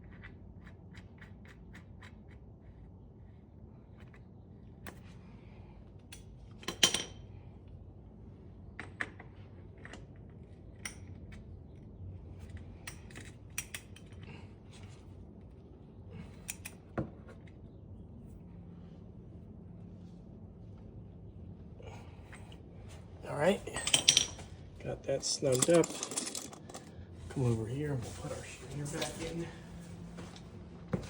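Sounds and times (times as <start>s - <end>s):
wrench clinking on metal: 23.7s - 24.5s, 25.3s - 26.9s.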